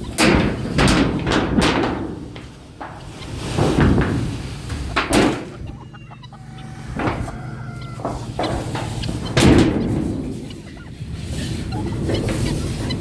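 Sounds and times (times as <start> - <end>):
chickens clucking: 0.0 - 13.0
thin high calls: 4.4 - 13.0.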